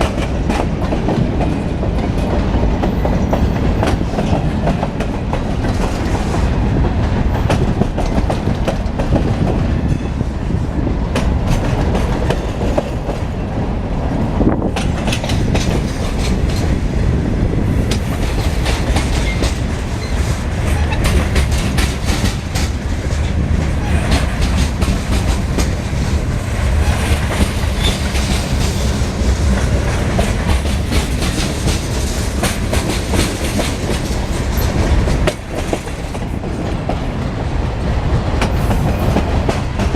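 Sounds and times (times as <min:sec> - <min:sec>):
freight train rumbling past: 0:00.0 - 0:39.9
wheels clicking over rail joints: 0:14.6 - 0:16.8.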